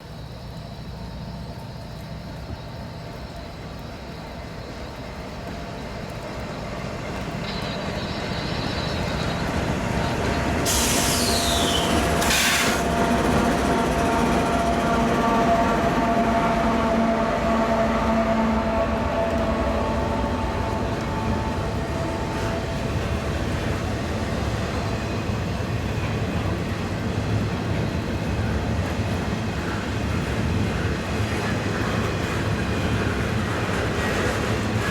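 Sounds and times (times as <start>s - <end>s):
freight train rumbling past: 0.0s - 34.9s
short sharp hiss: 10.7s - 12.8s
steady horn tones: 15.2s - 23.2s.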